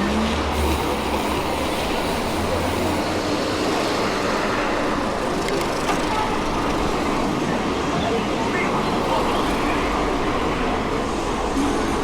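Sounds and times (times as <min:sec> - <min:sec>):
bike tyre and wind noise: 0:00.1 - 0:03.4.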